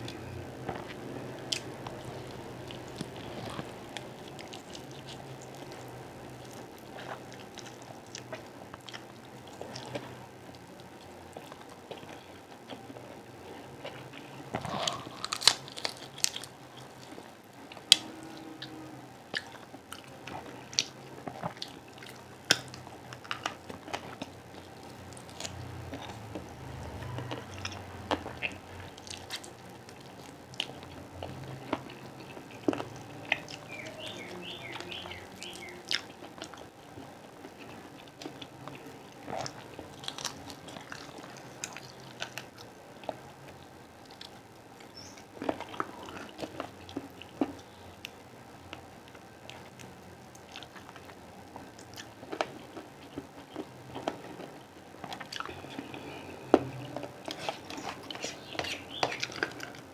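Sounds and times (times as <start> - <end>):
person biting and chewing: 14.6 - 16.6.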